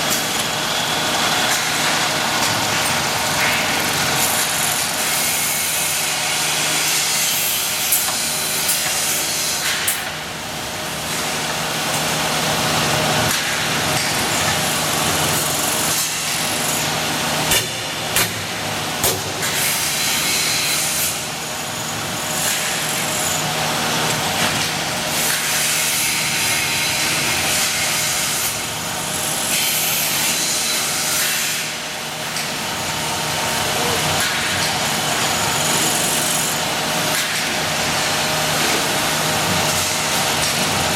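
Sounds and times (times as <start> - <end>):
drilling machine whirring: 0.0 - 9.7, 19.6 - 40.9.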